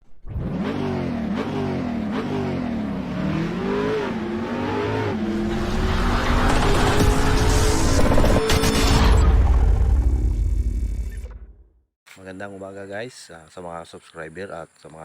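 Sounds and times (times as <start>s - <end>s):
car engine revving: 0.2s - 10.8s.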